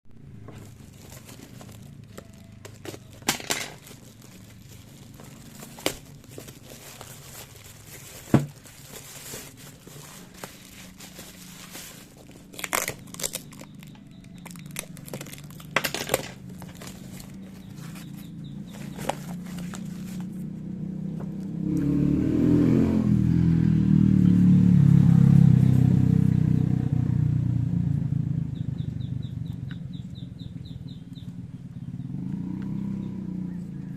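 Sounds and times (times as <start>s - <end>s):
handling clicks and knocks: 0.4s - 12.5s, 13.6s - 20.3s.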